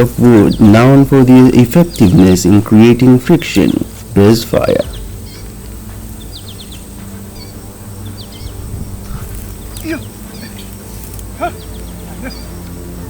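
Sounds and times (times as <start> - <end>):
birds chirping: 0.0 - 13.0
steady low hum: 0.0 - 13.0
rising bird call: 6.2 - 12.6.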